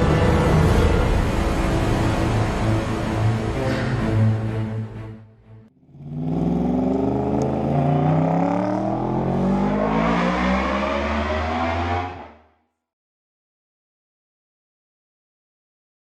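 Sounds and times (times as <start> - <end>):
motorcycle engine accelerating: 5.8 - 12.4.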